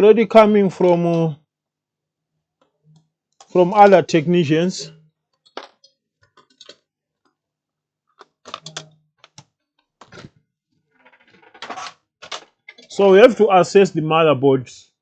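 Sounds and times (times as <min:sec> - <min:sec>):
laptop parts clicking and rattling: 0:05.4 - 0:07.4, 0:08.1 - 0:10.4, 0:11.0 - 0:12.9.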